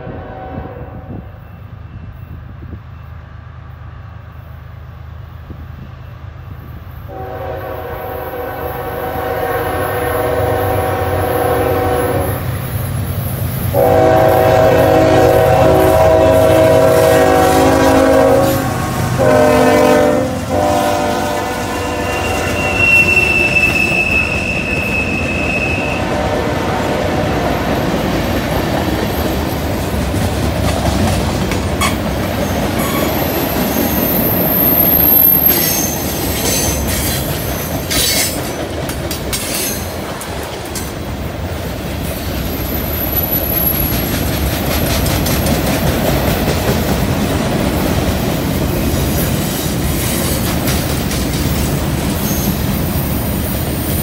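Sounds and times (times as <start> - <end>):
steel wheels rumbling on rail: 0.0 - 54.0
wheel flange squeal: 22.0 - 26.1, 31.8 - 38.4
train cars clattering and clicking: 26.6 - 54.0.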